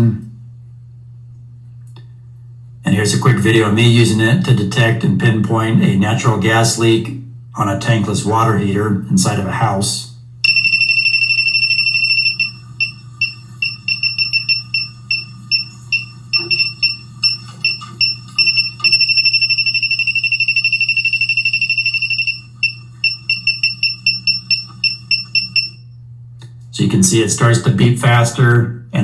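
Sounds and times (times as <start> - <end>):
steady low hum: 0.0 - 29.0
gas detector buzzer beeping: 10.4 - 26.0.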